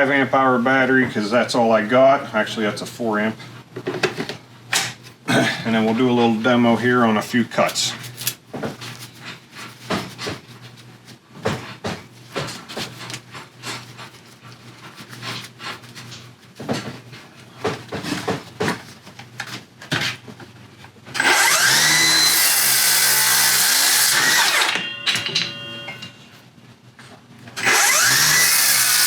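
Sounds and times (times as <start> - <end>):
circular saw cutting wood: 21.2 - 24.8, 27.6 - 29.0.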